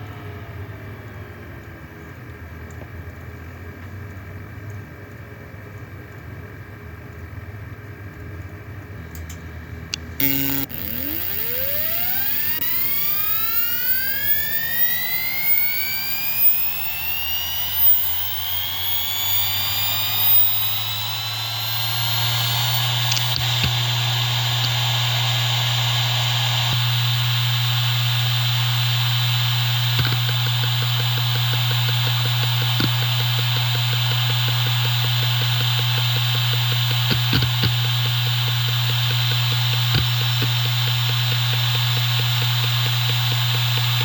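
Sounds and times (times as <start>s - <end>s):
hard drive whine: 9.6s - 44.0s.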